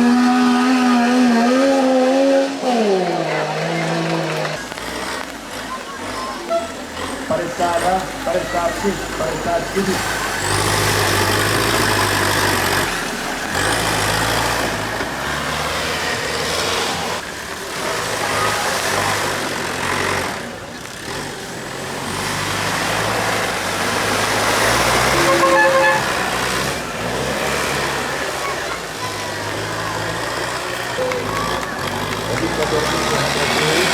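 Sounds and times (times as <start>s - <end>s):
tractor engines running: 0.0s - 33.9s
vehicle horn toot: 6.3s - 6.9s, 25.0s - 26.7s.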